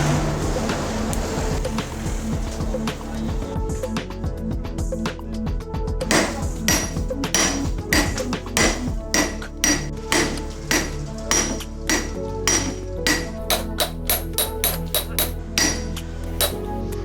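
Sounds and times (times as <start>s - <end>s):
hammer striking steel on anvil: 6.1s - 16.7s.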